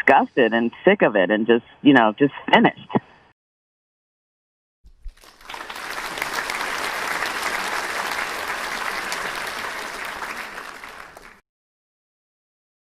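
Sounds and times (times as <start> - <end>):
audience applauding: 5.1 - 11.4.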